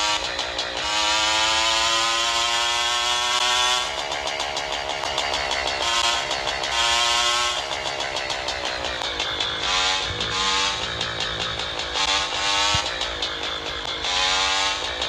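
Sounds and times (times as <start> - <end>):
motorcycle engine accelerating: 8.1 - 14.8.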